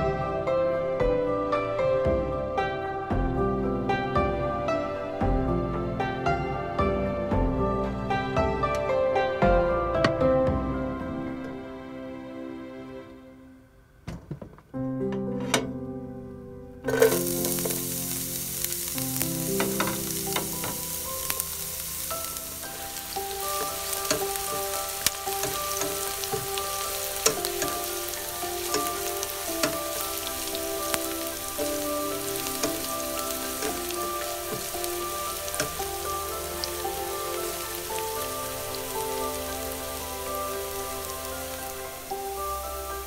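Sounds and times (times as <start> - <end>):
soft background music: 0.0 - 14.0, 14.7 - 43.0
spatula scraping and tapping pan: 16.9 - 17.8
vegetables sizzling in oil: 16.9 - 43.0.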